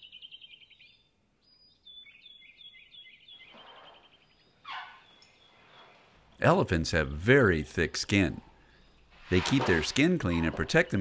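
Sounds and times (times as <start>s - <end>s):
birds chirping in trills: 0.0s - 6.4s, 8.5s - 9.2s.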